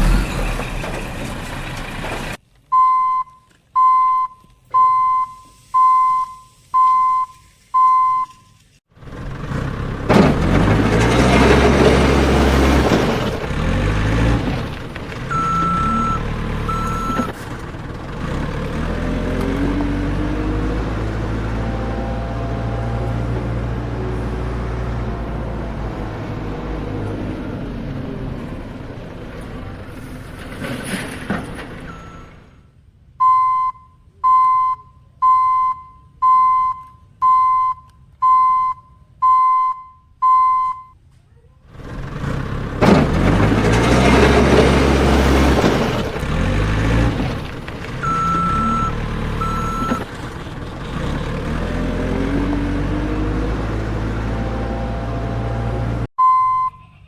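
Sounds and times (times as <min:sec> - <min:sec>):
engine running: 0:00.0 - 0:02.4, 0:09.0 - 0:32.0, 0:41.7 - 0:56.1
vehicle reversing alarm beeping: 0:02.7 - 0:08.6, 0:15.3 - 0:17.4, 0:31.9 - 0:41.0, 0:48.0 - 0:50.1, 0:56.2 - 0:57.0
short high beeps: 0:02.8 - 0:08.6, 0:33.2 - 0:41.0, 0:56.2 - 0:57.0.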